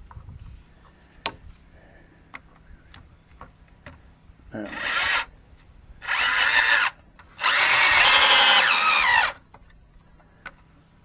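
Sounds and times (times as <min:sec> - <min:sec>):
power drill drilling into wood: 0:04.8 - 0:05.3, 0:06.0 - 0:09.4.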